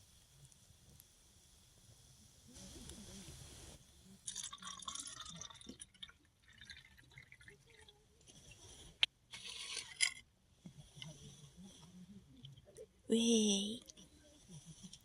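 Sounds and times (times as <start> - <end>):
liquid pouring or dripping: 4.3 - 7.9.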